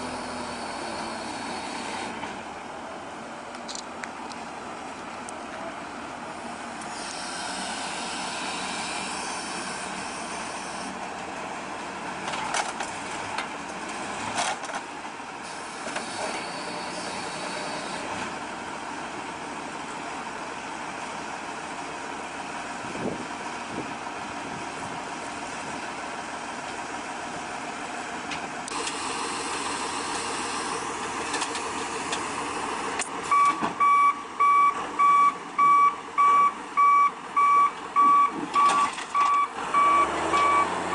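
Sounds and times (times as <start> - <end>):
diesel machinery running: 0.0 - 40.9
reversing alarm beeping: 33.3 - 40.9.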